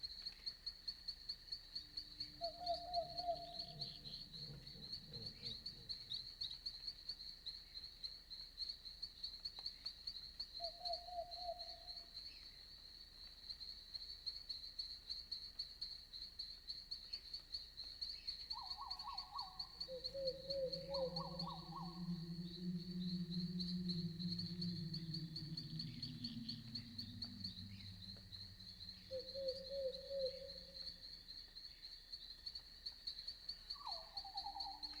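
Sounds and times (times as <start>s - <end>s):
crickets chirping: 0.0s - 35.0s
lower trilled animal calls: 2.4s - 6.0s, 18.6s - 31.0s.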